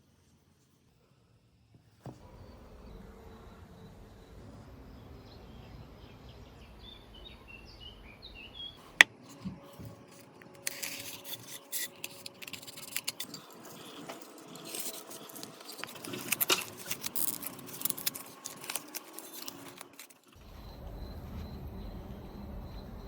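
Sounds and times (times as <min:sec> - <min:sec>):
low machine hum: 0:02.1 - 0:23.0
small metal parts clinking: 0:10.5 - 0:20.4.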